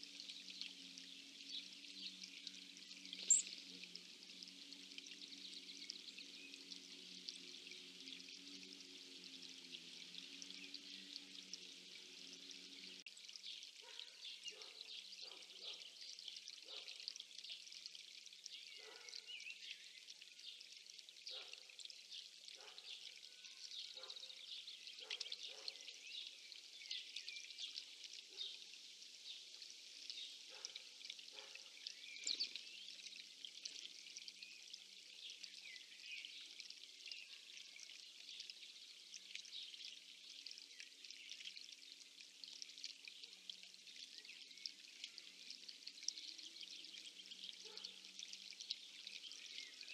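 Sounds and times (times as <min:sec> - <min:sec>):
songbirds chirping and singing: 0:00.3 - 0:03.6, 0:13.8 - 0:16.9, 0:18.5 - 0:20.6, 0:31.3 - 0:33.0.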